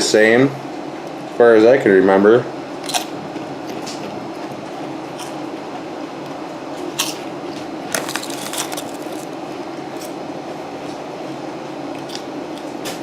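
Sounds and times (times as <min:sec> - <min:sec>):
steady low hum: 0:00.0 - 0:13.0
chip bag crinkling: 0:07.9 - 0:09.4
chips being eaten: 0:07.9 - 0:10.2.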